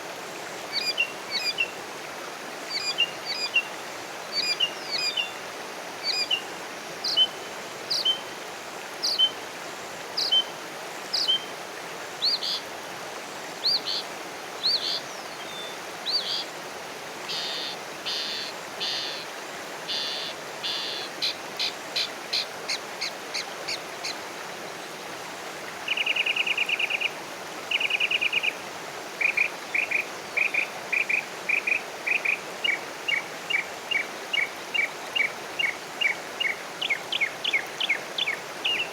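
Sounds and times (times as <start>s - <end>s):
steady background hiss: 0.0s - 38.9s
songbirds calling: 19.9s - 24.2s.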